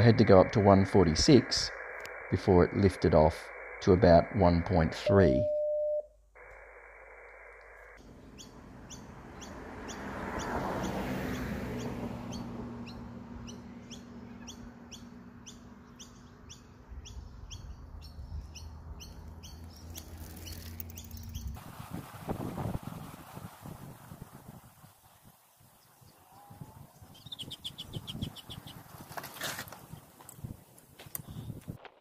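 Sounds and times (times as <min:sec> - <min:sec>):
rushing noise: 0:00.0 - 0:05.4, 0:06.4 - 0:08.0
low hum: 0:00.0 - 0:09.5
bird chirping: 0:07.7 - 0:21.6, 0:25.5 - 0:28.9.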